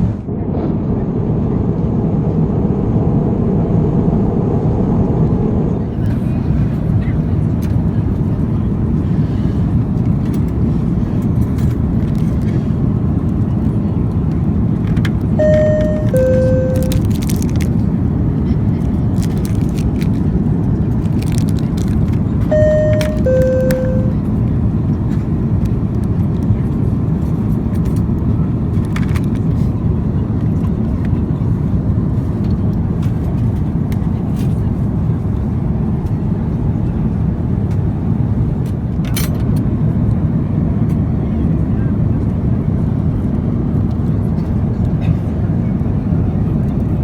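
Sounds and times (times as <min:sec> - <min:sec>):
airplane cabin rumble: 0:00.0 - 0:47.0
two-note cabin chime: 0:15.4 - 0:17.0, 0:22.5 - 0:24.2.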